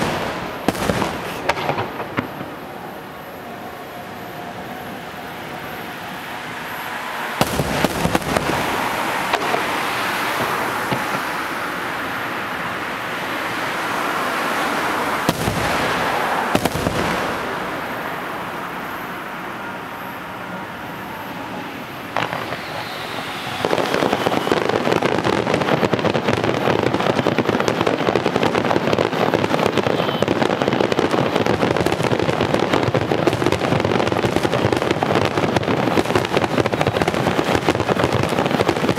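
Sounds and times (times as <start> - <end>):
firework shells booming: 0.0 - 3.3, 7.4 - 11.5, 15.2 - 19.1, 21.2 - 38.9
fireworks crackling: 0.0 - 38.9.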